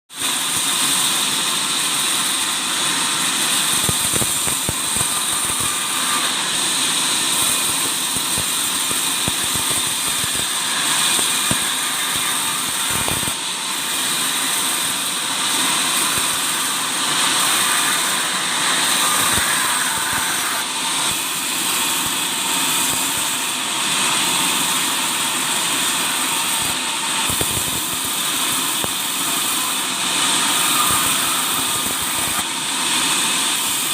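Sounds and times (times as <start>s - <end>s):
woodworking machine whine: 0.1s - 33.9s.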